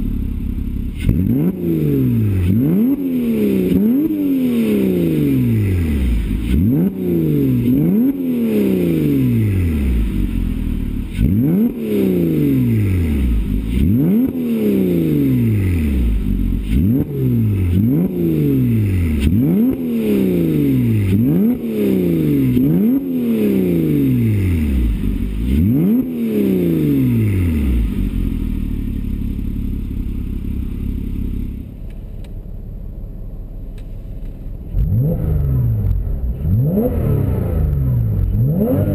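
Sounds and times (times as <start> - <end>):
car engine revving: 0.0 - 32.5, 33.6 - 38.9
car engine idling: 0.0 - 38.9.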